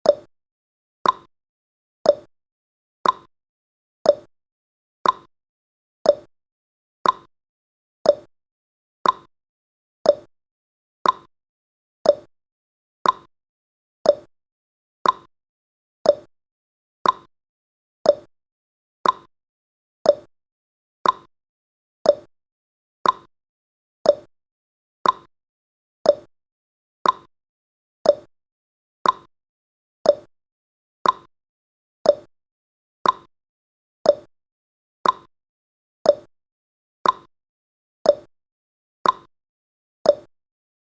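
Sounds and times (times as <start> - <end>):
timer tick blips: 0.0 - 0.3, 1.0 - 1.3, 2.0 - 2.3, 3.0 - 3.3, 4.0 - 4.3, 5.0 - 5.3, 6.0 - 6.3, 7.0 - 7.3, 8.0 - 8.3, 9.0 - 9.3, 10.0 - 10.3, 11.0 - 11.3, 12.0 - 12.3, 13.0 - 13.3, 14.0 - 14.3, 15.0 - 15.3, 16.0 - 16.3, 17.0 - 17.3, 18.0 - 18.3, 19.0 - 19.3, 20.0 - 20.3, 21.0 - 21.3, 22.0 - 22.3, 23.0 - 23.3, 24.0 - 24.3, 25.0 - 25.3, 26.0 - 26.3, 27.0 - 27.3, 28.0 - 28.3, 29.0 - 29.3, 30.0 - 30.3, 31.0 - 31.3, 32.0 - 32.3, 33.0 - 33.3, 34.0 - 34.3, 35.0 - 35.3, 36.0 - 36.3, 37.0 - 37.3, 38.0 - 38.3, 39.0 - 39.3, 40.0 - 40.3.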